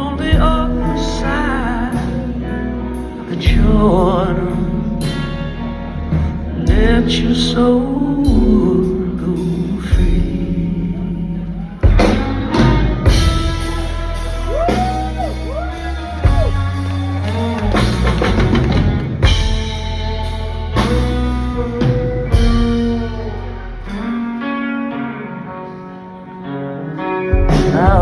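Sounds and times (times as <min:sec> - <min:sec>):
instrumental rock music: 0:00.0 - 0:28.0.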